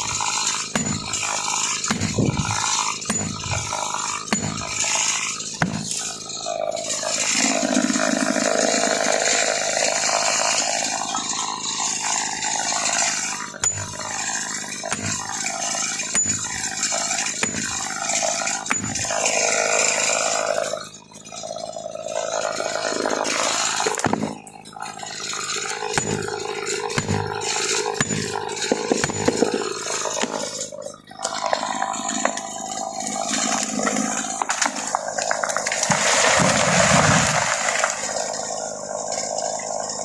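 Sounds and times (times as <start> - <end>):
chainsaw cutting wood: 0.0 - 40.0.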